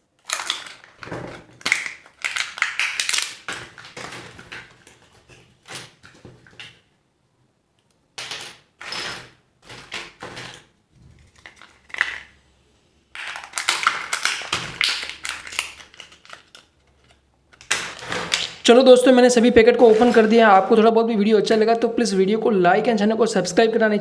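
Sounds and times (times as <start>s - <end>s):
plastic wrapping crinkling and tearing: 0.0s - 6.8s, 8.2s - 12.4s, 13.1s - 18.7s.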